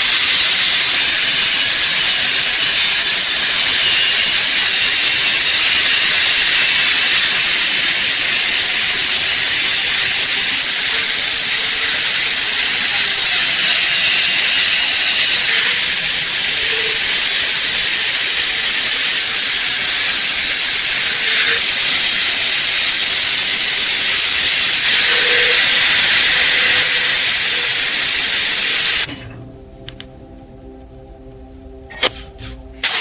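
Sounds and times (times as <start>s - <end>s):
loud steady hiss: 0.0s - 29.1s, 32.0s - 33.0s
faint steady hum: 29.1s - 32.8s
sharp clicks: 29.8s - 30.2s.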